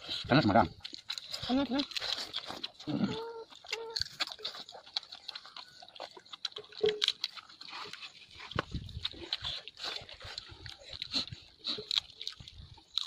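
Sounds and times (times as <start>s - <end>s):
chewing with wet mouth clicks: 0.0s - 13.0s.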